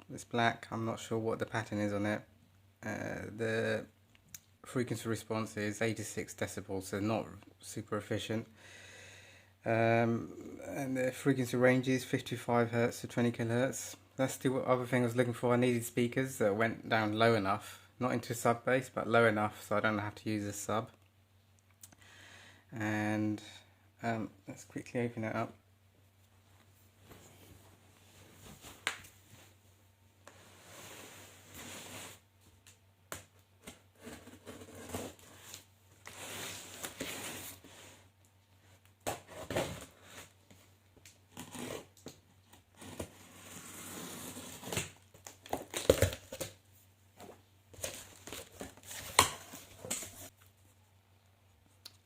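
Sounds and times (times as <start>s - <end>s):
cardboard packing rustling: 47.2s - 50.3s.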